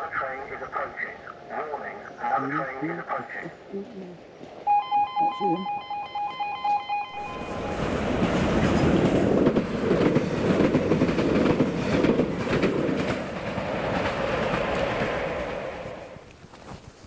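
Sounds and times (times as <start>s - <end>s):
train wheels rumbling on rails: 7.2s - 16.8s.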